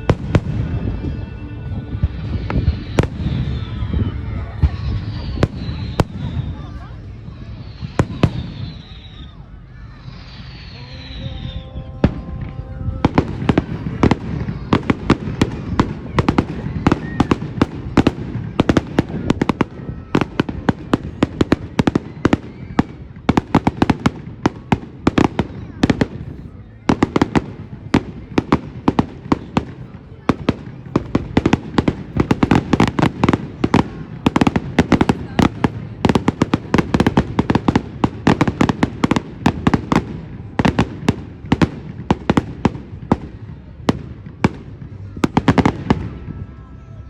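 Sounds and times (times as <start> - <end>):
fireworks bangs: 0.0 - 46.6.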